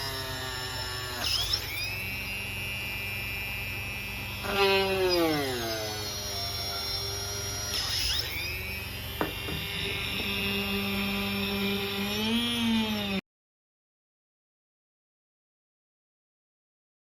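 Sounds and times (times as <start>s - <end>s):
cordless drill whining: 0.0s - 13.2s.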